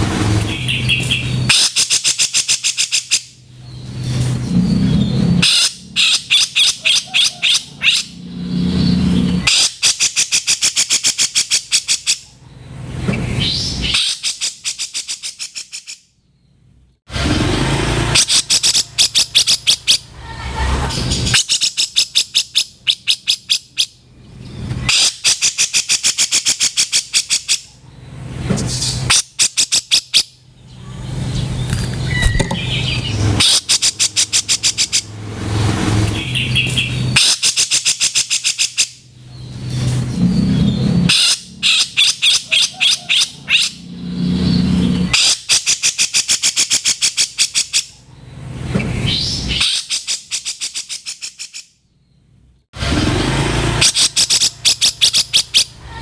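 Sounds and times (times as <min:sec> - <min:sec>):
bulbul harsh rattling call: 0:18.1 - 0:20.1, 0:32.1 - 0:35.1, 0:53.8 - 0:55.8.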